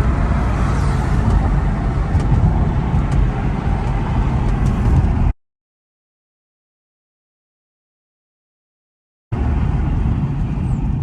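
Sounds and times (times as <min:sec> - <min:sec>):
car engine and exhaust rumble: 0:00.0 - 0:05.4, 0:09.3 - 0:11.0
road noise: 0:00.0 - 0:05.4, 0:09.3 - 0:11.0.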